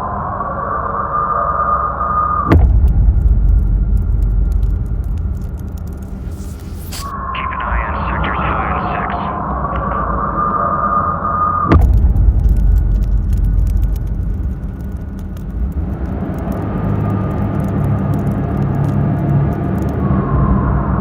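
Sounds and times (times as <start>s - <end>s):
vehicle engine low rumble: 2.5s - 7.1s, 11.7s - 21.0s
faint scattered clicks: 12.5s - 20.0s.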